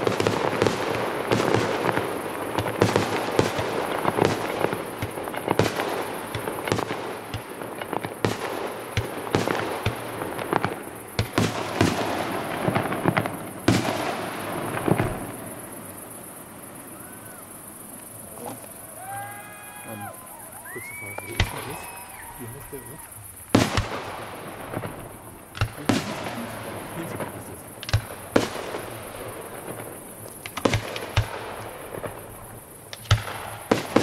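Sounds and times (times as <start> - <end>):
fireworks bangs: 0.0 - 34.0
fireworks crackling: 0.0 - 34.0.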